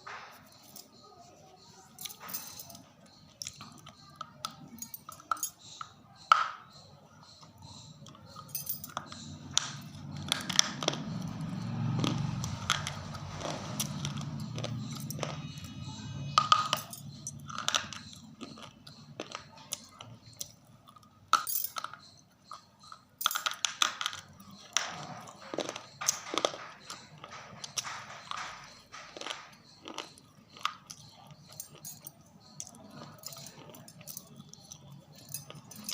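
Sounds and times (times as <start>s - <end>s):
muffled chewing: 7.2s - 21.3s, 24.2s - 35.9s
crunchy biting: 24.6s - 31.8s.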